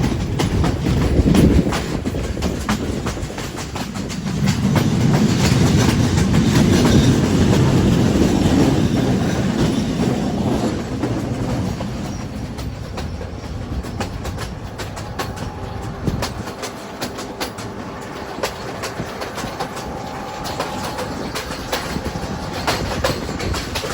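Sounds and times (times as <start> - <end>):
train wheels clattering over rail joints: 0.0 - 23.9.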